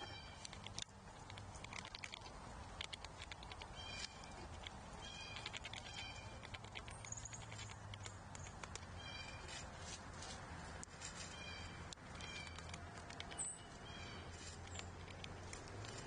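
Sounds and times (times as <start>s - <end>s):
low steady hum: 0.0s - 16.0s
bird giving harsh calls: 8.9s - 9.5s.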